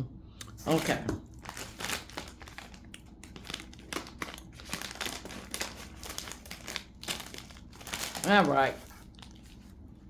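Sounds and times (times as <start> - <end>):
plastic snack bag crinkling: 0.6 - 9.8.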